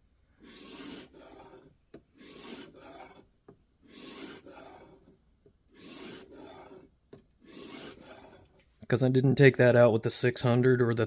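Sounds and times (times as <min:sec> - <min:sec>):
sharpening plate rasping on knife: 0:00.4 - 0:03.3, 0:03.9 - 0:05.1, 0:05.8 - 0:08.5.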